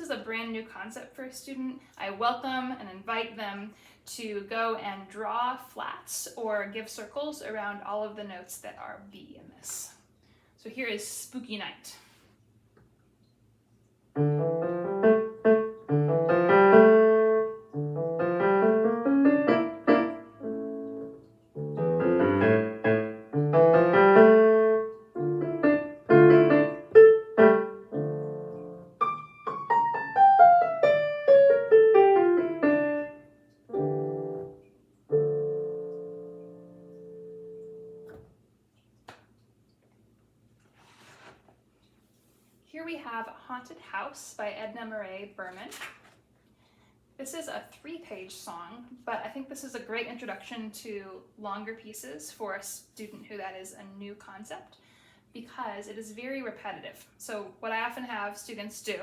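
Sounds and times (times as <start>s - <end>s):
solo piano playing: 14.2s - 38.2s.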